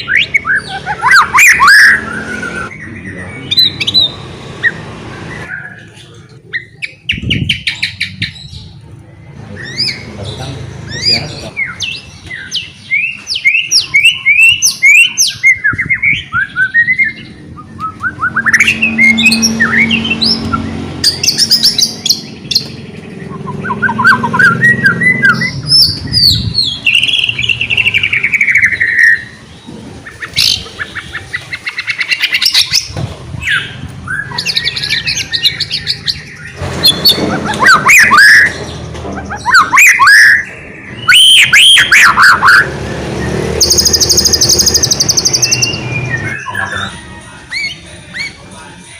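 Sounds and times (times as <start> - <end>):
bird singing whistled phrases: 10.9 - 29.4, 33.5 - 38.6, 39.3 - 42.6.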